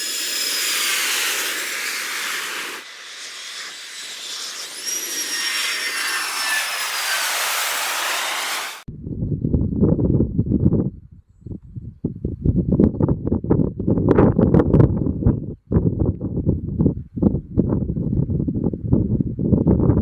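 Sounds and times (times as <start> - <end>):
jet engine hiss and turbine whine: 0.0 - 8.9.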